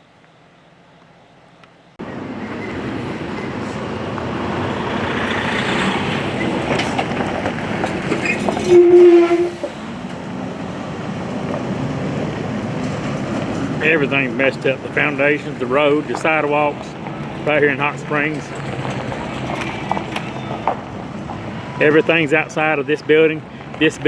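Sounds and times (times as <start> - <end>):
heavy vehicle rumbling past: 2.0 - 23.8
vehicle horn blast: 8.6 - 9.7.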